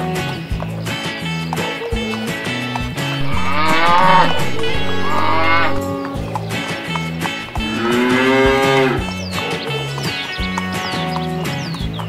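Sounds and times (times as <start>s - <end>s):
background music with bass line: 2.8s - 12.0s
cow mooing: 3.2s - 5.9s, 7.6s - 9.0s.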